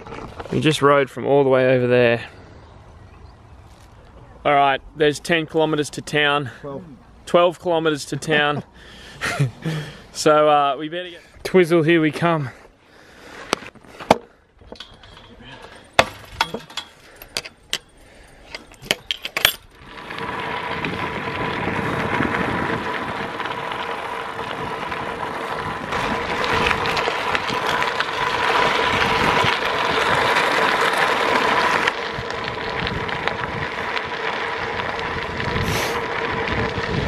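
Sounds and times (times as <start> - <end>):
bicycle wheels rolling: 0.0 - 6.6, 12.5 - 37.0
wind rushing: 19.8 - 23.8.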